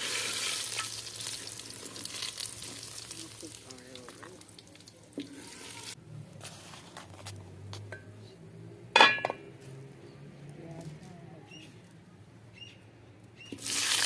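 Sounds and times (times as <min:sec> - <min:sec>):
food sizzling in a pan: 0:00.0 - 0:06.0, 0:13.6 - 0:14.0
metal cookware clanging: 0:08.9 - 0:09.5
metal utensils clinking: 0:09.0 - 0:09.4.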